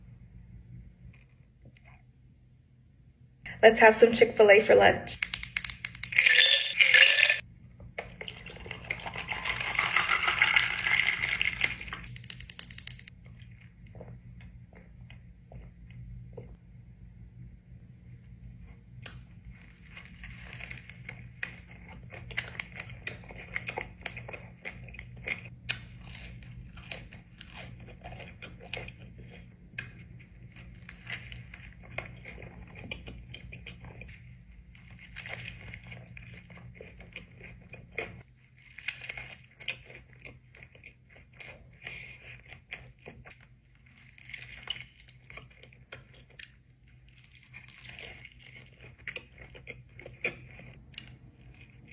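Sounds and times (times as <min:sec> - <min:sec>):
steady low hum: 0:00.0 - 0:09.7, 0:11.3 - 0:51.9
crackly clicks: 0:05.2 - 0:06.2
person crunching and chewing: 0:08.0 - 0:15.8, 0:19.5 - 0:51.9.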